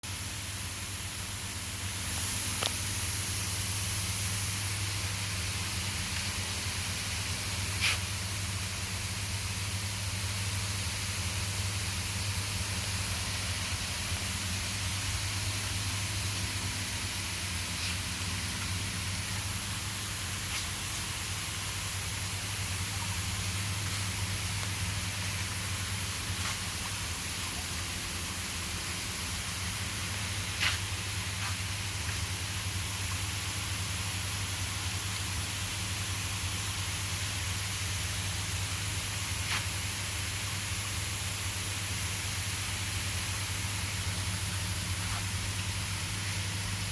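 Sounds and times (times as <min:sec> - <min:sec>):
misting nozzles hissing: 0:01.9 - 0:08.6, 0:12.0 - 0:32.4.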